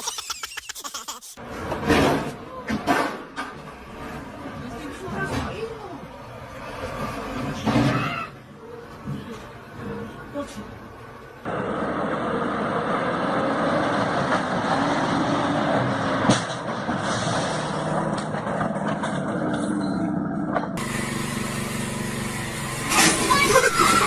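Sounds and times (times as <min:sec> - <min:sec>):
vehicle road and engine noise: 0:01.4 - 0:24.0.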